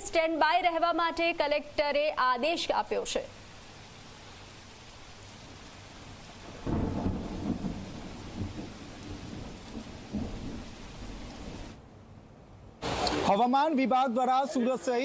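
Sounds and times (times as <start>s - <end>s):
heavy rain falling: 2.1s - 11.8s, 12.8s - 13.6s
thunder rumbling: 6.4s - 11.8s.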